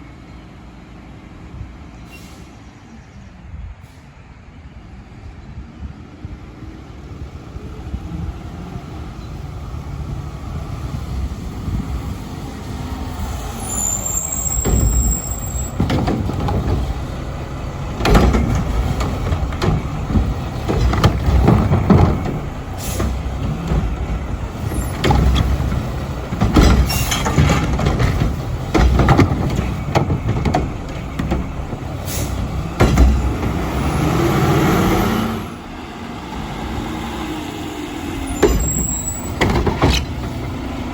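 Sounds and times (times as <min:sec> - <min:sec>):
diesel engine revving: 0:06.3 - 0:40.9
metal clanks and bangs: 0:14.3 - 0:34.0, 0:38.3 - 0:40.9.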